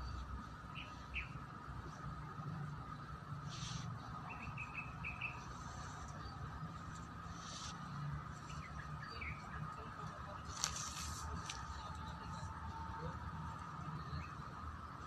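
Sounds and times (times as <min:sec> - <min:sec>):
small bird chirping: 0:04.3 - 0:06.5.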